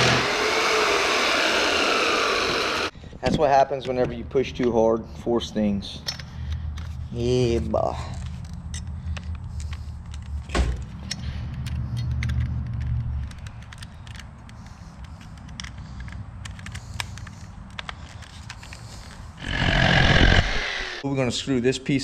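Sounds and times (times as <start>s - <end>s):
wood pieces and tools clicking: 6.0s - 20.8s.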